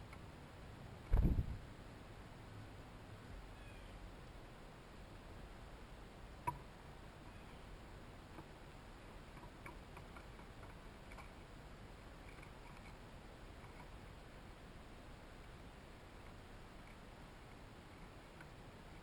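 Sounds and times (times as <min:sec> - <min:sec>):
ticks and taps at bird feeder: 0:06.4 - 0:06.6, 0:09.3 - 0:11.3.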